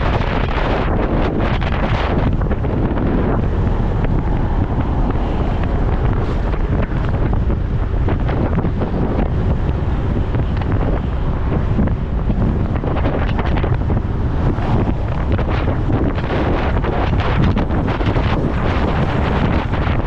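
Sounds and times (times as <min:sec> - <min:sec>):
motorcycle engine rumble: 0:00.0 - 0:20.0
road noise: 0:00.0 - 0:20.0
wind rushing over microphone: 0:00.0 - 0:20.0.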